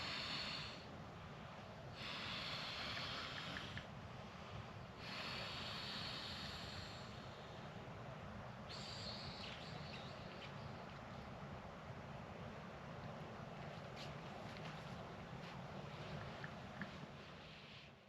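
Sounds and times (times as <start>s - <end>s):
person breathing heavily: 0.0s - 0.9s, 1.9s - 7.8s
low steady rumble: 0.0s - 18.0s.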